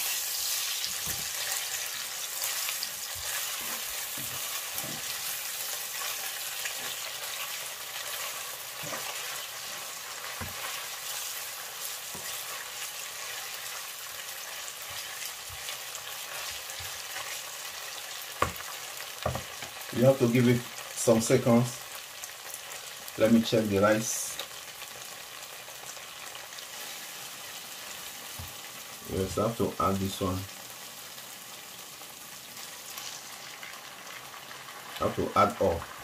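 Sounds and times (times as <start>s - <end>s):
wooden spatula scraping pan: 0.0s - 17.4s
onions sizzling in oil: 0.0s - 36.0s.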